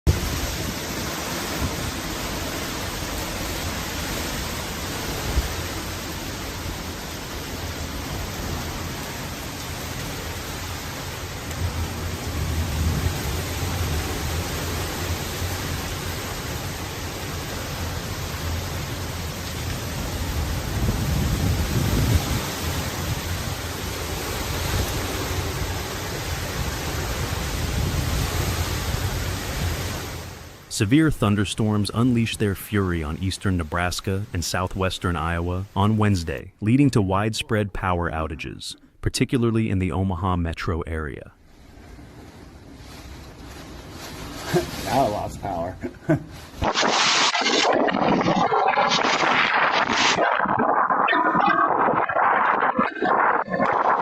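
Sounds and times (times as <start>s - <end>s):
wind and rain rushing: 0.0s - 54.0s
thunder rumbling: 0.1s - 29.8s.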